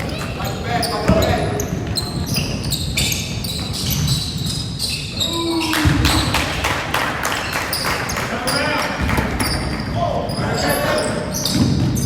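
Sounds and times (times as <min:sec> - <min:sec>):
crowd noise: 0:00.0 - 0:04.2, 0:04.9 - 0:12.0
basketball bouncing on court: 0:00.0 - 0:04.5, 0:05.8 - 0:06.6, 0:08.5 - 0:10.4, 0:11.0 - 0:12.0
shoe squeaks: 0:00.0 - 0:06.3, 0:07.4 - 0:12.0.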